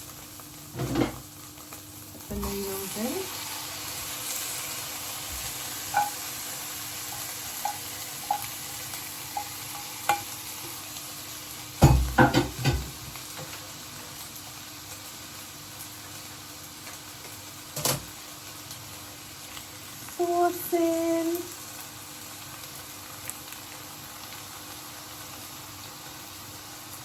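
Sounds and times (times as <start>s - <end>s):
food sizzling in a frying pan: 0.0s - 27.0s
utensil tapping against pan: 5.9s - 6.2s.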